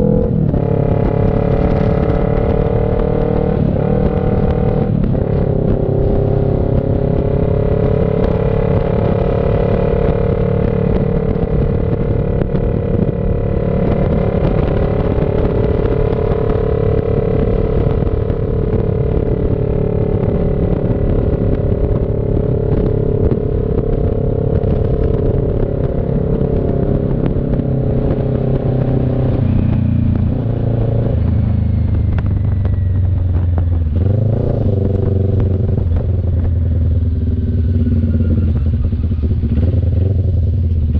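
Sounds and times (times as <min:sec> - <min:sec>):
motorcycle engine cruising: 0:00.0 - 0:40.9.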